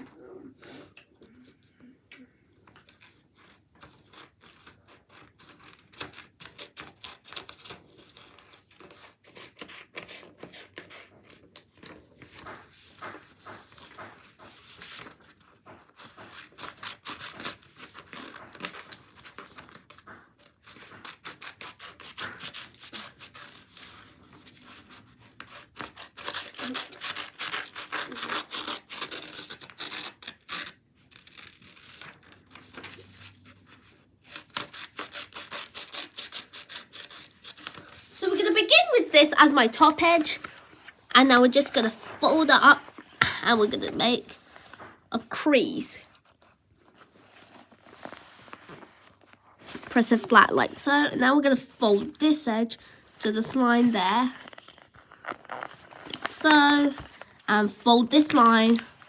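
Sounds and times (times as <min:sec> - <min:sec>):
paper rustling and crinkling: 0:02.6 - 0:45.4, 0:46.0 - 0:59.0.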